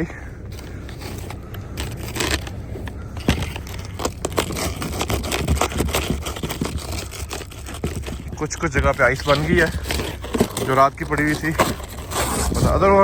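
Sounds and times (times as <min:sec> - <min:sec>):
broom scraping snow off car: 0:03.4 - 0:13.0.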